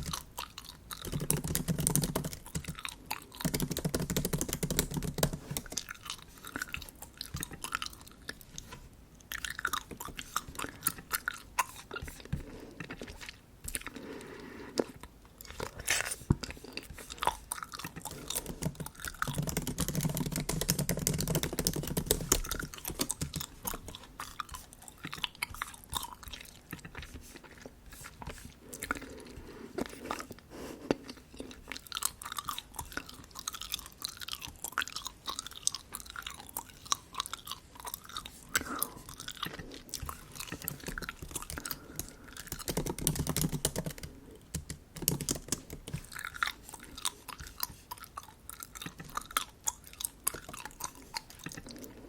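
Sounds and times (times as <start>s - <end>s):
bubble gum chewing: 0.0s - 52.0s.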